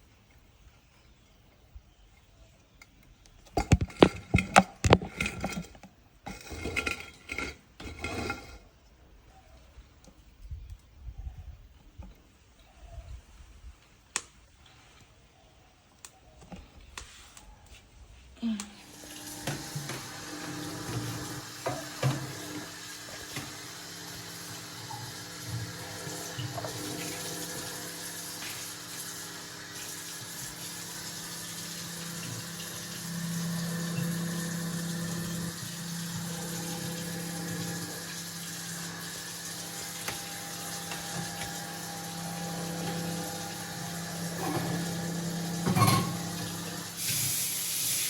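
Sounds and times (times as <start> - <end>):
chicken sizzling in hot oil: 18.9 - 48.0
pots and dishes clinking: 44.3 - 46.8.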